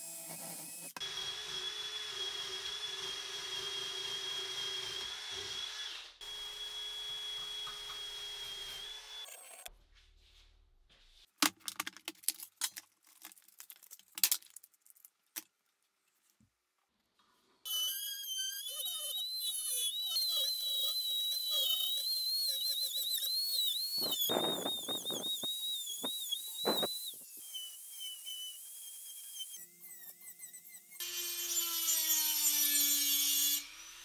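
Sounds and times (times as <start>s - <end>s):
rotary tool grinding iron: 17.7s - 34.0s.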